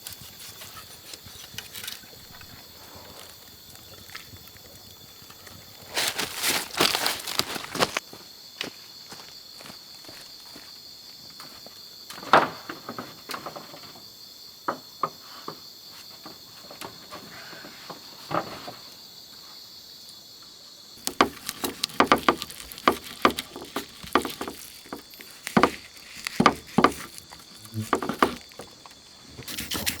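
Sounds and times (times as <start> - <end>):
high insect drone: 0.0 - 30.0
crackles and snaps: 21.0 - 30.0.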